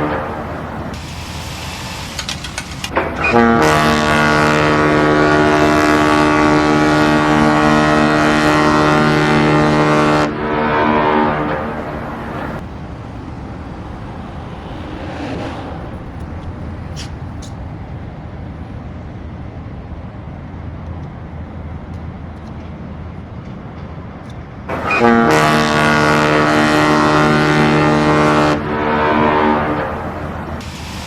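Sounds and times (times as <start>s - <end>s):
ship's horn blast: 2.9s - 17.6s, 24.7s - 30.8s
steady low rumble: 11.5s - 23.4s.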